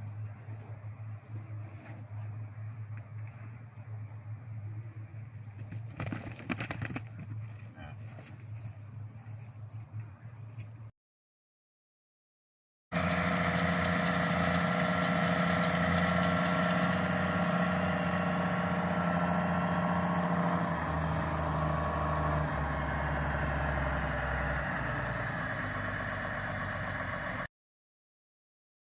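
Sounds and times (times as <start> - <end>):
fast rattle: 5.5 - 7.6
tractor engine running: 13.0 - 27.5.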